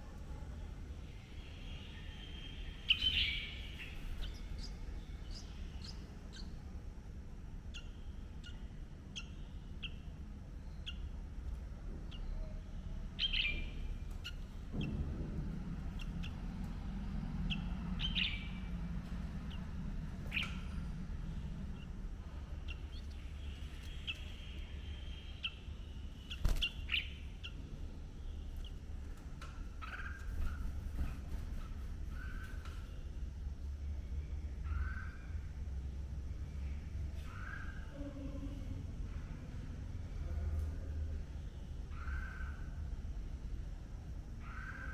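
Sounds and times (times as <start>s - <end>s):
low background rumble: 0.0s - 44.9s
bird chirping: 1.2s - 6.6s, 7.6s - 11.3s, 12.0s - 15.0s, 15.7s - 33.0s.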